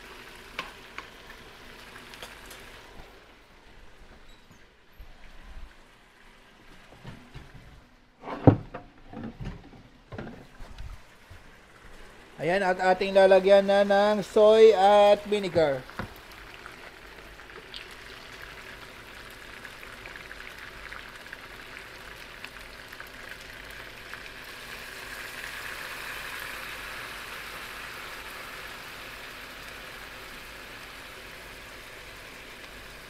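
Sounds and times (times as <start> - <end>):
chicken sizzling in a wok: 0.0 - 3.2, 15.6 - 33.0.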